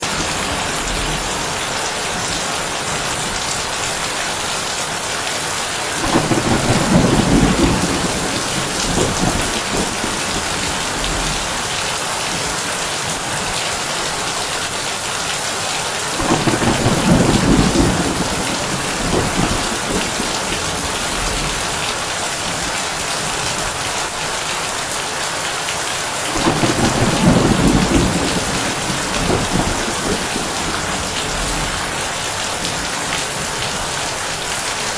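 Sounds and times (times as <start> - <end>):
thunder rumbling: 0.0 - 4.4, 5.8 - 13.6, 16.1 - 23.8, 26.2 - 34.6
heavy rain on a tin roof: 0.0 - 34.9.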